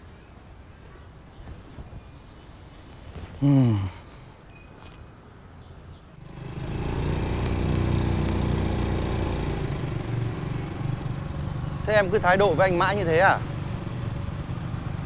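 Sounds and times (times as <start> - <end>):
small motorbike engine idling: 6.2 - 15.0.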